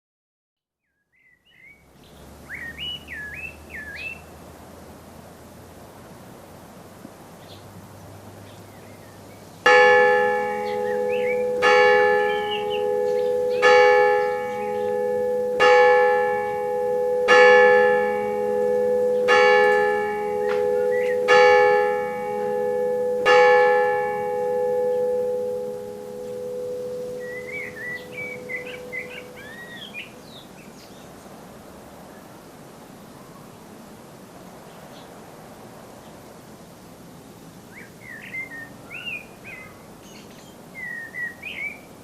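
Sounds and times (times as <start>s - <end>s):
birds chirping: 1.2s - 4.3s, 8.4s - 31.1s
church bell striking: 9.7s - 30.2s.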